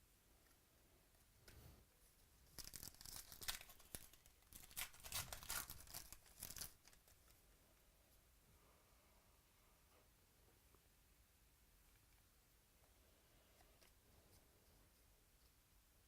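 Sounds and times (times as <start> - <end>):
wrapper tearing and crinkling: 2.5 - 7.1.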